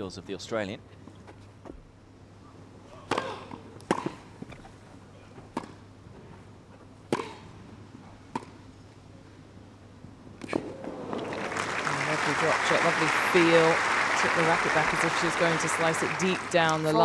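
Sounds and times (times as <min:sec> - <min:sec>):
tennis ball bouncing: 0:03.1 - 0:04.2, 0:05.5 - 0:05.8, 0:07.1 - 0:07.4, 0:08.3 - 0:08.6
rackets hitting tennis ball: 0:07.1 - 0:07.5
crowd applause: 0:10.6 - 0:17.0.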